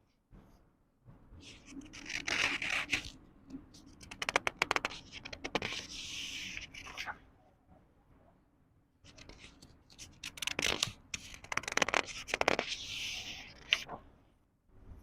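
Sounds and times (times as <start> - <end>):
book pages turning: 1.4 - 3.2, 3.8 - 7.2, 9.1 - 14.0.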